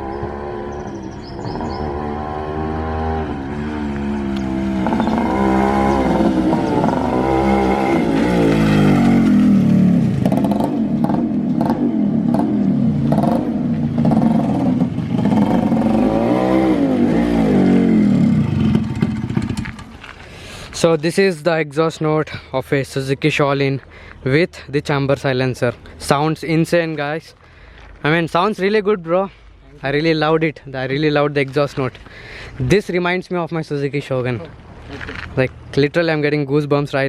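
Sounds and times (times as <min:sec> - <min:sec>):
two-stroke motorcycle engine revving: 0:00.0 - 0:19.8.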